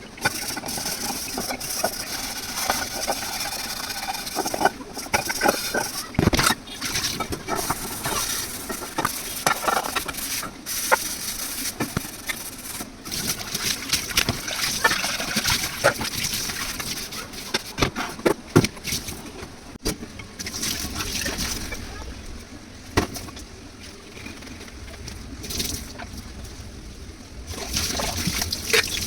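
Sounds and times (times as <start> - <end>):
water splashing: 0.0 - 29.0
kitchen utensils and dishes clattering: 0.1 - 19.4.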